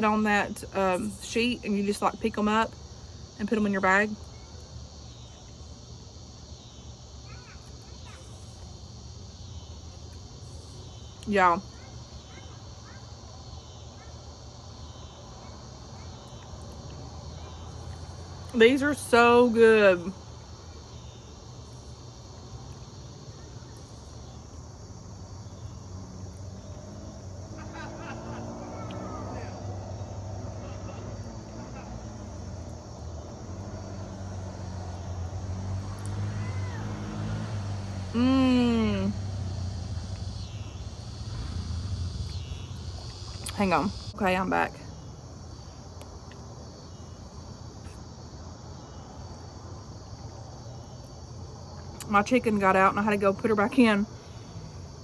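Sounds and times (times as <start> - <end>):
insects chirring: 0.0 - 55.0
low steady rumble: 37.9 - 44.5.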